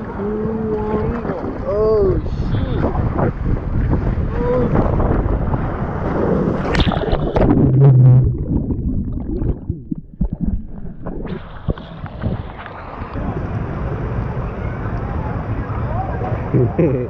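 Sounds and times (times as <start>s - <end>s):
wind buffeting microphone: 0.0s - 15.2s
rushing splashing water: 0.7s - 14.2s.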